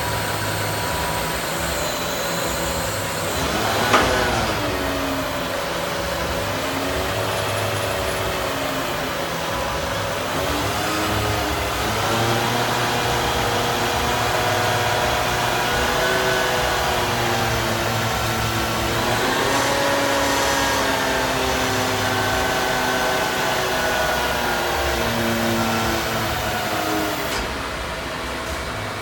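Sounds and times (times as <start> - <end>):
truck mechanical whine: 0.0 - 29.0.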